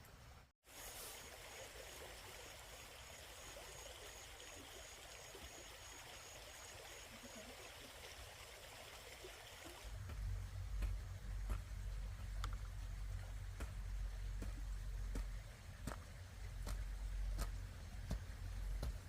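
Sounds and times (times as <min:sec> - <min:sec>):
running water: 0:00.7 - 0:19.0
low rumble: 0:09.9 - 0:19.0.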